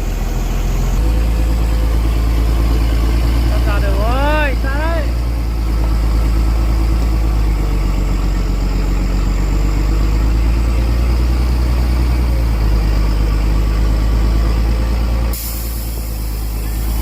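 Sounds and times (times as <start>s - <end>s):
truck engine rumbling at low revs: 0.0s - 17.0s.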